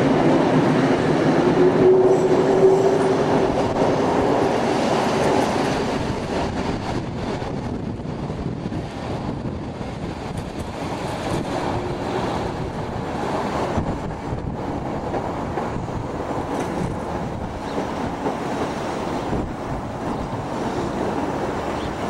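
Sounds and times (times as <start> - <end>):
train wheels rumbling on rails: 0.0 - 22.0
wind noise on microphone: 0.0 - 22.0.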